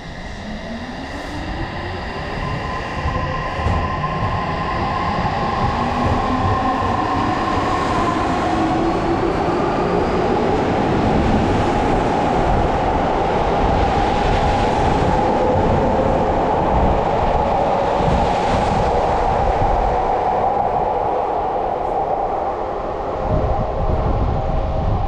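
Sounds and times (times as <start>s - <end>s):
train wheels rumbling on track: 0.0s - 22.6s.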